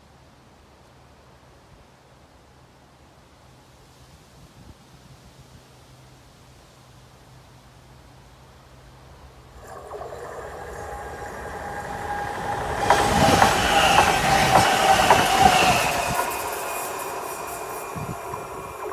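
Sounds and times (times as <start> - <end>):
clicks over rail joints: 9.6 - 17.5
high electric whine: 9.6 - 18.9
train wheels rushing on rail: 9.6 - 18.9.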